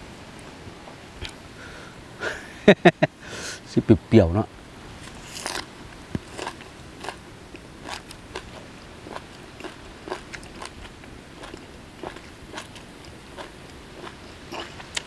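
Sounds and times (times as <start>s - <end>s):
crunchy chewing: 5.0s - 15.0s.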